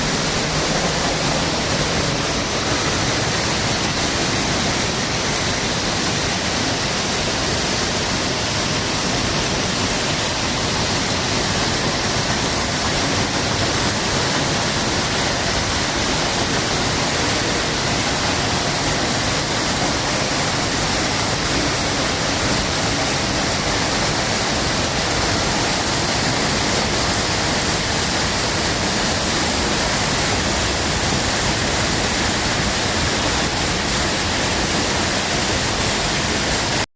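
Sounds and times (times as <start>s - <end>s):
waterfall roaring: 0.0s - 36.9s.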